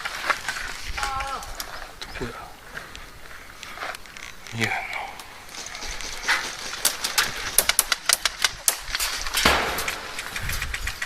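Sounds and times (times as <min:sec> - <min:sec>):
airsoft guns firing: 0:09.4 - 0:10.6.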